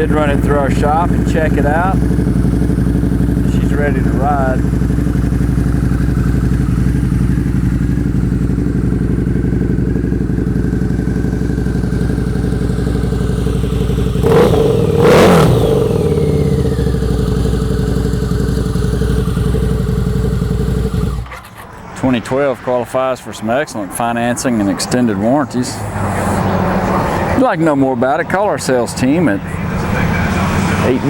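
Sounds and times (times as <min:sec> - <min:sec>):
motorcycle engine idling: 0:00.0 - 0:21.4
motorcycle throttle revs: 0:00.0 - 0:21.5.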